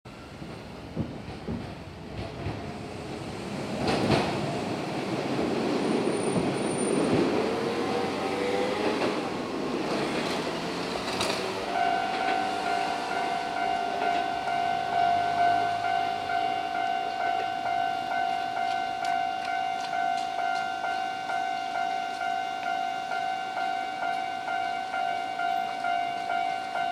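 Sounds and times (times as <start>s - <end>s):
train wheels rumbling on rails: 0.1s - 26.9s
high ringing tone: 11.6s - 26.9s.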